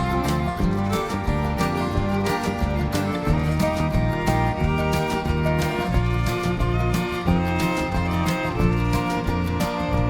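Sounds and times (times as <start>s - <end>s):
upbeat country acoustic guitar tune: 0.0s - 10.0s.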